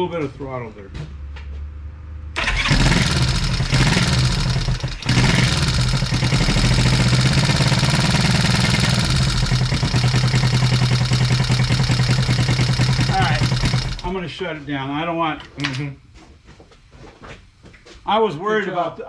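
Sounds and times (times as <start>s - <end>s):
motorcycle engine starting and idling: 2.4s - 14.2s.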